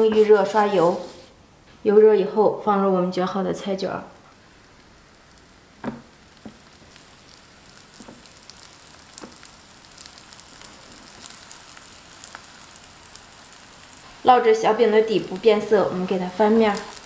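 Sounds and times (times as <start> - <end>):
pancakes sizzling in hot oil: 4.3 - 17.0.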